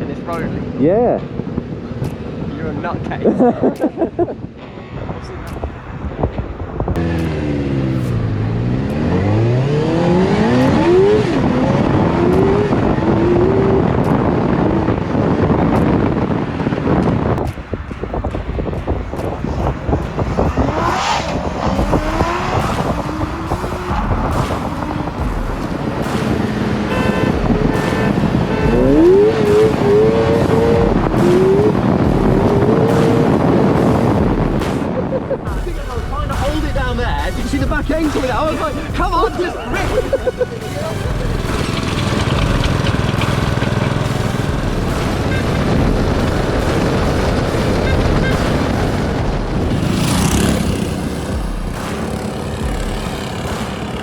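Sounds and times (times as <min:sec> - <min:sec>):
motorcycle engine accelerating: 0:00.0 - 0:35.6, 0:39.8 - 0:54.0
wind and road rumble: 0:00.0 - 0:54.0.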